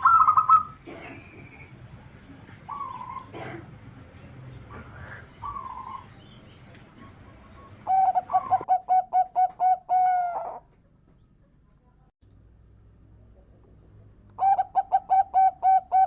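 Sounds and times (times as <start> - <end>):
dove cooing: 0.0 - 1.6, 2.4 - 10.7, 14.4 - 16.0.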